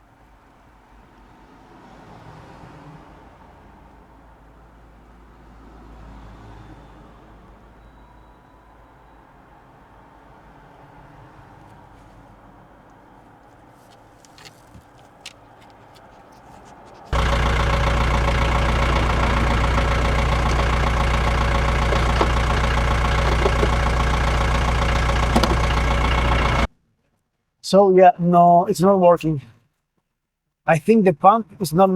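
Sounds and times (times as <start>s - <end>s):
blower motor hum and whine: 17.1s - 26.7s.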